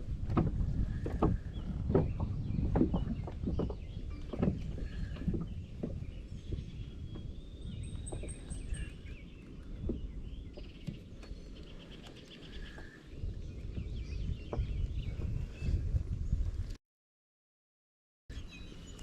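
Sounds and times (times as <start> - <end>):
wind rumbling on microphone: 0.0 - 16.8
small birds chirping: 0.9 - 15.8.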